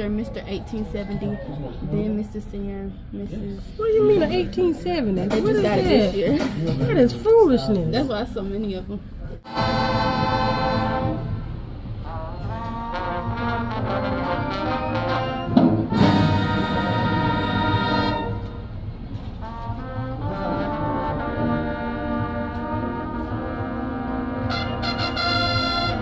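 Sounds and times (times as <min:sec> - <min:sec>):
brass band playing chords: 0:05.1 - 0:07.2, 0:09.4 - 0:26.0.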